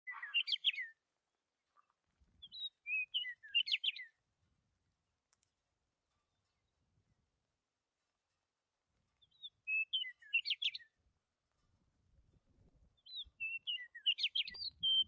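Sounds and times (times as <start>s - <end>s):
bird chirping: 0.0s - 1.0s, 2.4s - 4.2s, 9.1s - 11.0s, 12.9s - 15.0s.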